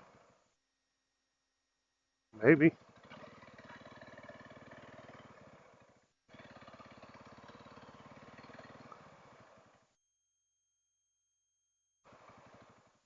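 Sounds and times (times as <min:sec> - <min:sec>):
motorcycle engine running: 0:02.8 - 0:09.9, 0:12.1 - 0:13.0.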